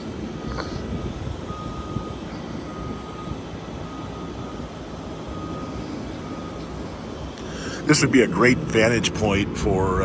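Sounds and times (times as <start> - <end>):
faint high whine: 0.0 - 10.0
low rumbling noise: 0.0 - 10.0.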